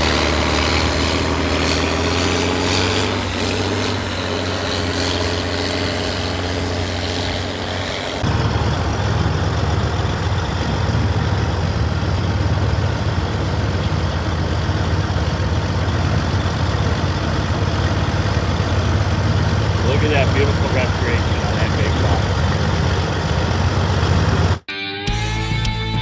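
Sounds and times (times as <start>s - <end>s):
rough deep engine: 0.0s - 24.6s
tractor engines running: 0.0s - 24.6s.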